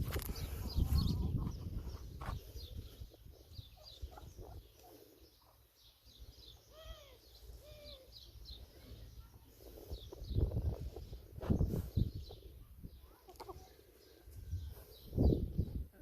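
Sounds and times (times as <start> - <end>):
small birds chirping: 0.0 - 16.0
short arched bird calls: 6.2 - 9.4.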